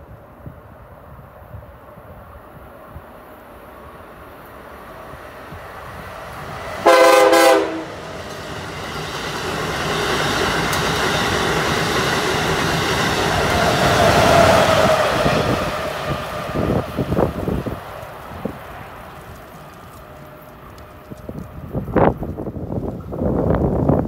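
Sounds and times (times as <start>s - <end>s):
train passing at speed: 0.0s - 24.0s
train horn blast: 6.8s - 8.0s.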